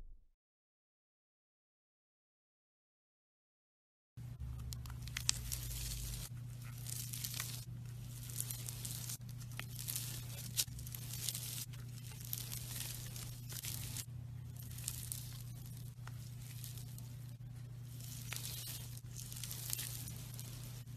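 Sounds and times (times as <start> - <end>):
steady low hum: 4.2 - 20.9
slime crackling and popping: 4.3 - 20.9.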